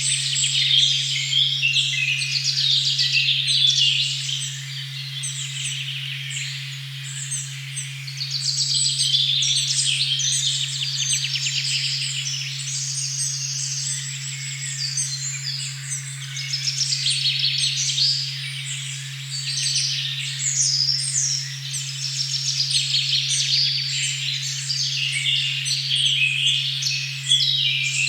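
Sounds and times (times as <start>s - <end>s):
birds chirping and trilling: 19.3s - 28.0s.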